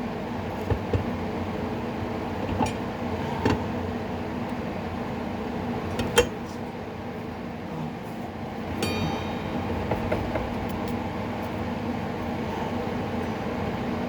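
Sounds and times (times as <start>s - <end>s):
steady mechanical hum: 0.0s - 14.0s
sharp metal knock: 8.8s - 10.9s
ringing metallic clink: 8.8s - 11.0s.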